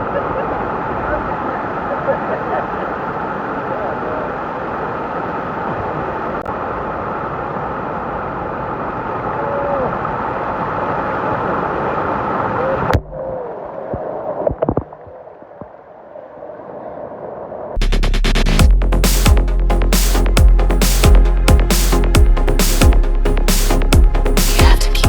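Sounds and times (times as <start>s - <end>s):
waterfall rushing: 0.0s - 14.3s
water splashing and gurgling: 0.0s - 16.1s.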